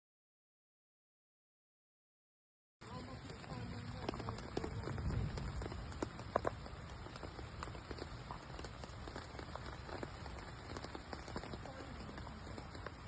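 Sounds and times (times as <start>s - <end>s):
soft steady hiss: 2.8s - 13.0s.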